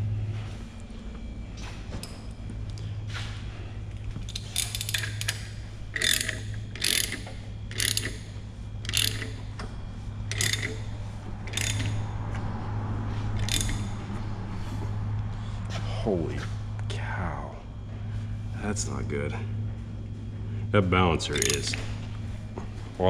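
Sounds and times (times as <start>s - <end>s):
steady low hum: 0.0s - 23.0s
hand ratchet clicking: 4.3s - 9.5s, 10.3s - 12.1s, 13.4s - 14.0s, 21.3s - 21.8s.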